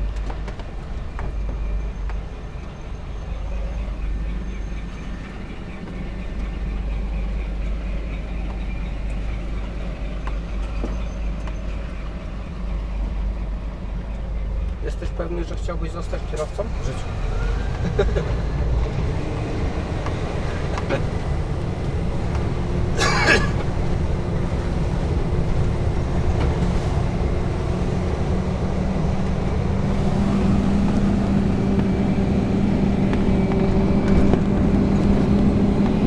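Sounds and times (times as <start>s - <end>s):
truck engine drone in cab: 0.0s - 36.0s.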